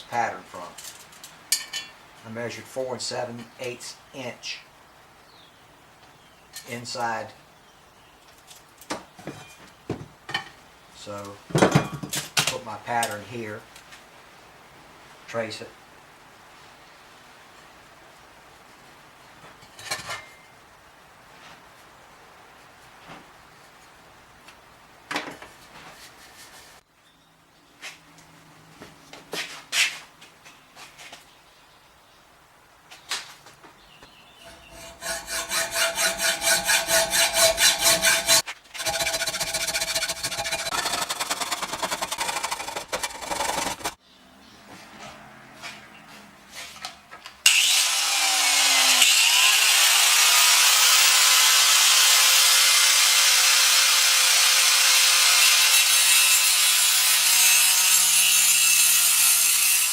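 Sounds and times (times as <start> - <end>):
hand tool rasping on metal pipe: 34.4 - 44.0
power grinder grinding metal: 34.4 - 44.0, 47.5 - 59.9.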